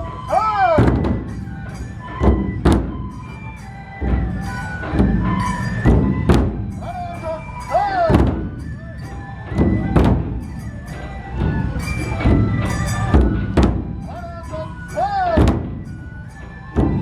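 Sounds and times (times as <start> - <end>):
held melodic notes: 0.0 - 17.0
large drums beating: 0.0 - 17.0.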